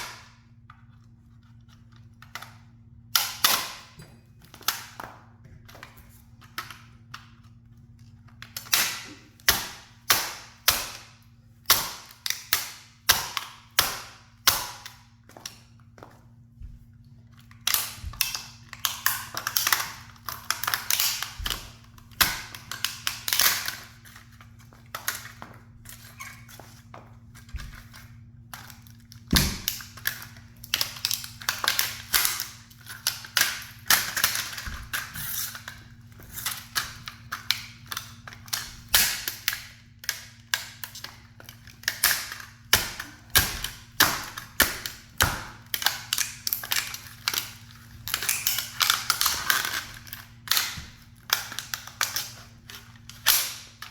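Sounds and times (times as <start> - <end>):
toy car cracking and crunching: 27.7 - 53.9.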